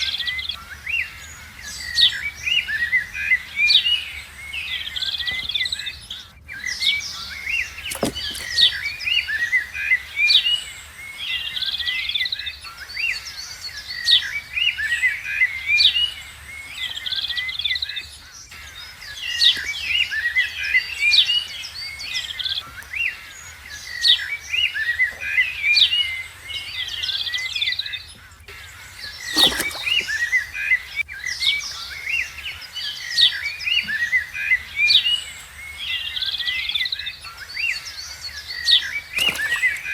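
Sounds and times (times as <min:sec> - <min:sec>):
small birds chirping: 0:28.8 - 0:30.6, 0:38.3 - 0:39.9.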